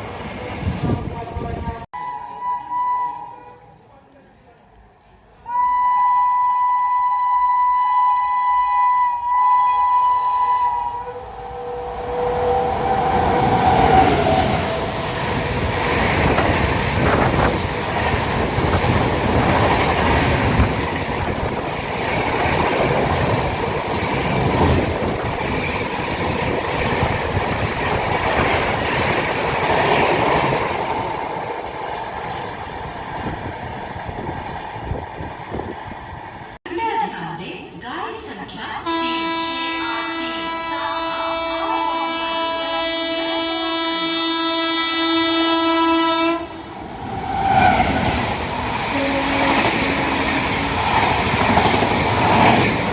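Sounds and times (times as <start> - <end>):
two-tone train horn blast: 1.1 - 3.8, 5.5 - 15.2, 38.9 - 46.8, 48.9 - 50.9
train wheels clattering on rails: 47.2 - 52.9.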